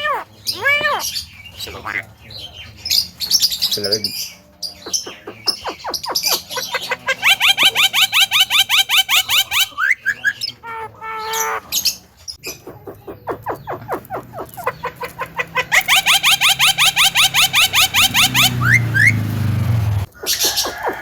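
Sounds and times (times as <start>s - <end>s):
myna calling rising notes: 14.7s - 21.0s.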